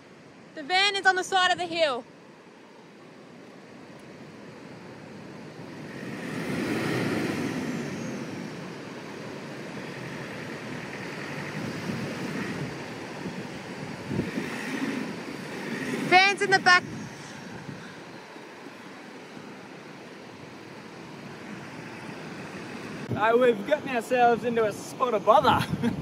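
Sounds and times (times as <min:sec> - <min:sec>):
wind: 0:00.0 - 0:26.0
truck engine under load: 0:05.6 - 0:23.1.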